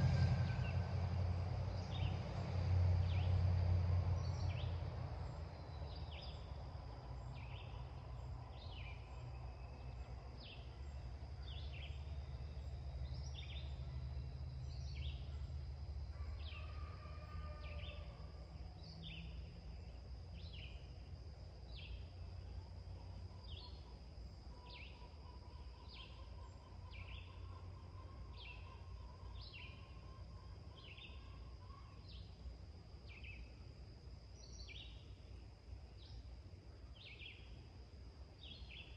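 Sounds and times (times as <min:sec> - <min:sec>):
low rumble: 0:00.0 - 0:05.6.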